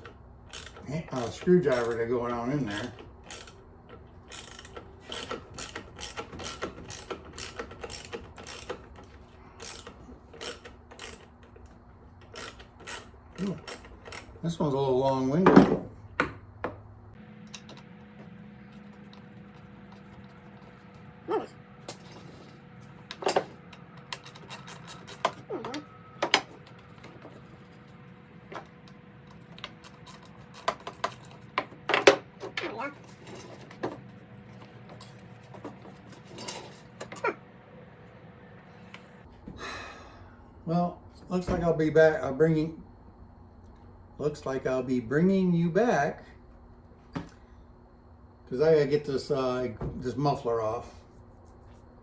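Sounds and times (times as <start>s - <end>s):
tools clicking on metal parts: 0.0s - 3.6s, 4.3s - 11.6s, 12.3s - 14.3s, 19.8s - 37.4s
hand ratchet clicking: 0.5s - 2.0s, 4.3s - 8.8s, 9.6s - 11.3s, 12.3s - 14.3s
low hum: 17.2s - 39.2s
brief squeak: 24.4s - 26.1s.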